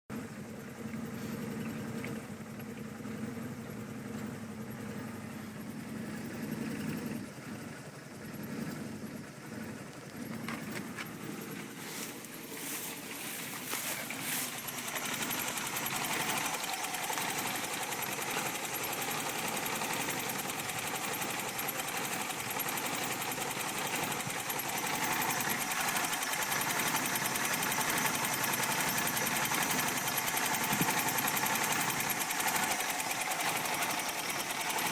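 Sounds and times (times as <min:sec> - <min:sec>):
car engine idling roughly: 0:00.1 - 0:34.9.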